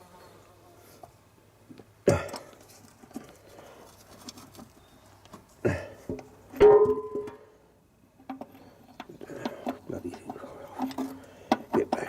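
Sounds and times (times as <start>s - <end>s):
small metallic scrapes and knocks: 2.5s - 5.6s, 8.2s - 12.0s
sharp ringing metal clanks: 6.6s - 7.5s.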